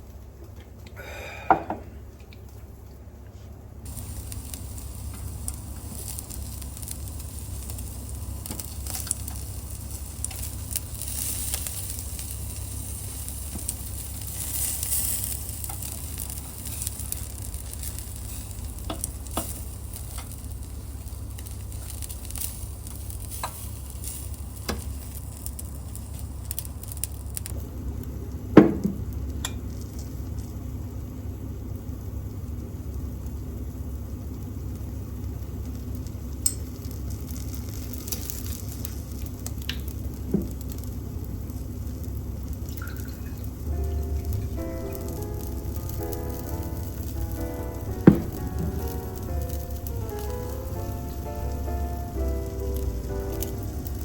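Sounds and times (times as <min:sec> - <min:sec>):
steady low hum: 0:00.0 - 0:35.5, 0:41.4 - 0:54.0
range hood fan rumbling: 0:00.0 - 0:54.0
meat sizzling on a grill: 0:03.9 - 0:54.0
sharp loud knock: 0:47.8 - 0:49.2.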